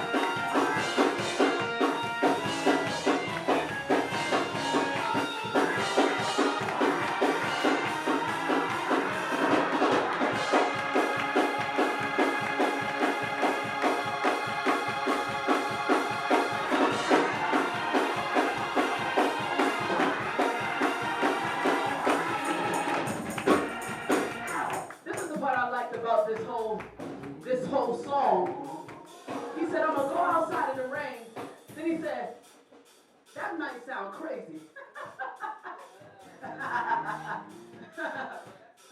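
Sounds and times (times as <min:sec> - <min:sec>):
organ: 0:00.0 - 0:24.6
drum kit fast beat: 0:00.0 - 0:38.9.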